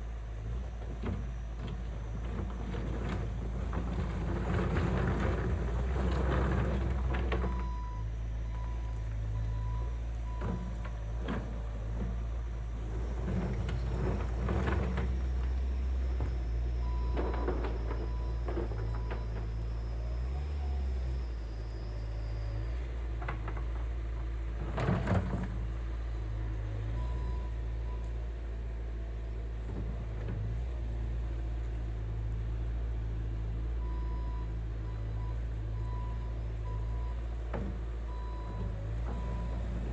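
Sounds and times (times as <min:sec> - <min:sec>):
diesel engine running under load: 0:00.0 - 0:39.9
machine knocks and rattles: 0:00.9 - 0:07.7.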